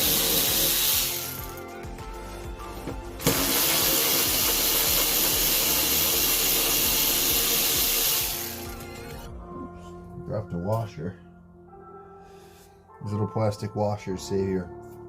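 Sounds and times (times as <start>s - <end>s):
loud steady hiss: 0.0s - 1.5s, 3.2s - 8.7s.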